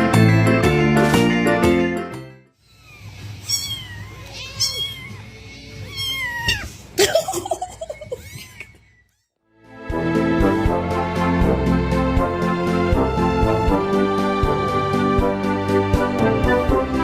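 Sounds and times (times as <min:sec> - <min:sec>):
cat meowing: 0:02.6 - 0:07.0.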